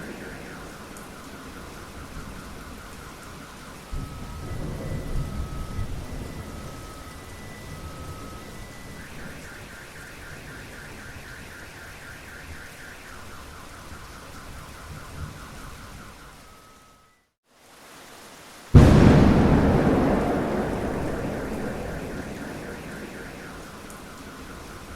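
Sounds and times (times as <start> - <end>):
rain falling: 0.0 - 16.6, 17.5 - 24.9
loud thunderclap: 18.8 - 24.9.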